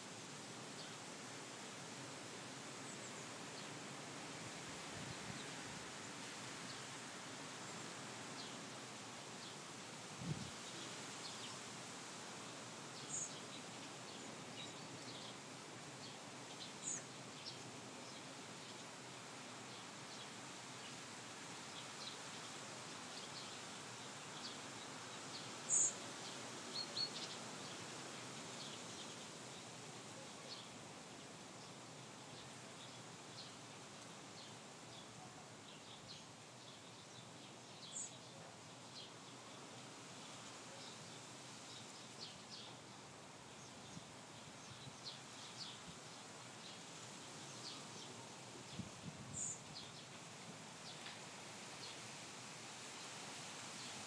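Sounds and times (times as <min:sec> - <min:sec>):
faint steady hiss: 0:00.0 - 0:54.0
small birds chirping: 0:12.4 - 0:19.0, 0:19.6 - 0:27.9, 0:28.5 - 0:52.1.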